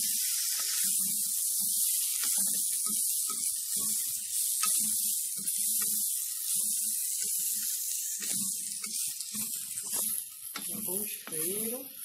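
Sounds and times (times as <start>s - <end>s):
food sizzling in a pot: 0.0s - 12.0s
spatula stirring: 0.0s - 12.0s.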